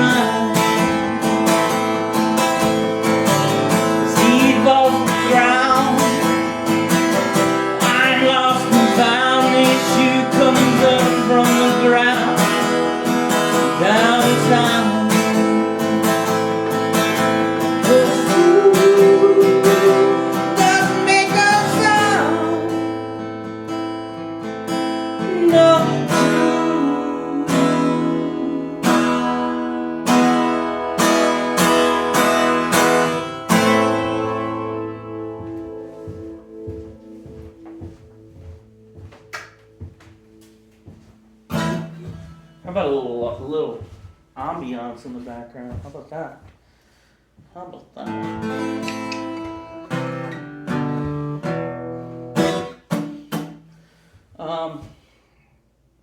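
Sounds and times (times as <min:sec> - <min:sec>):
person singing: 0:00.0 - 0:01.5, 0:03.8 - 0:06.6, 0:07.8 - 0:12.6, 0:13.6 - 0:16.7, 0:17.6 - 0:23.1, 0:25.2 - 0:29.6
acoustic guitar strumming: 0:00.0 - 0:55.2.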